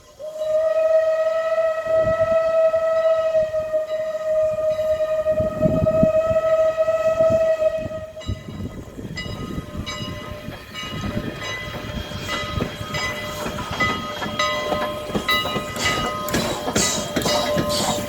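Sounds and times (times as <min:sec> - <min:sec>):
steam exhaust chuffs: 0:00.0 - 0:18.0
locomotive bell ringing: 0:08.1 - 0:18.0.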